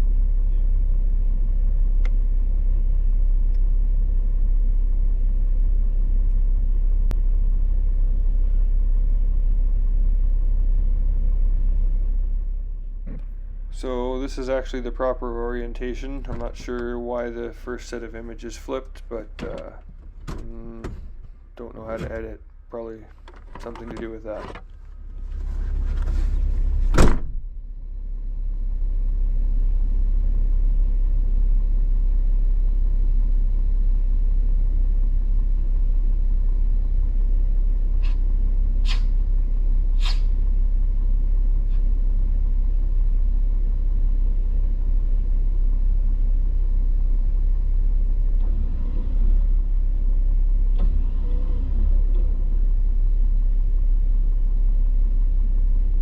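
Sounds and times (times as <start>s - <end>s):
low vehicle rumble: 0.0s - 56.0s.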